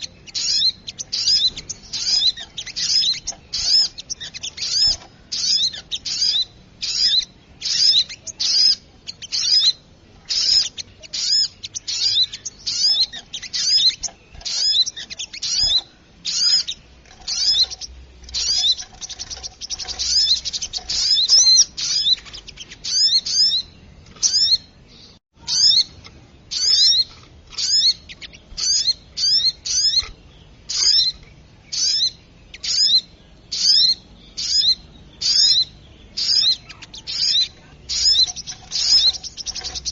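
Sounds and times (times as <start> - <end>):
bird calls high quavering: 26.5 - 39.9.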